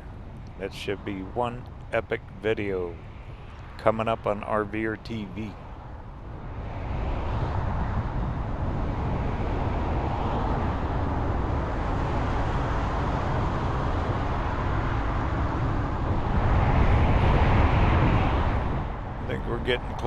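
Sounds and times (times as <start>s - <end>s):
vehicle road and engine noise: 0.0s - 20.0s.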